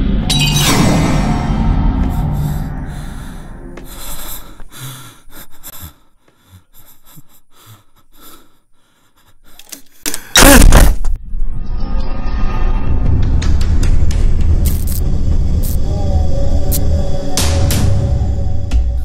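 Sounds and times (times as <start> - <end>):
loud jump-scare hit: 0.0 - 2.7
horror film music: 0.0 - 9.8, 11.2 - 19.0.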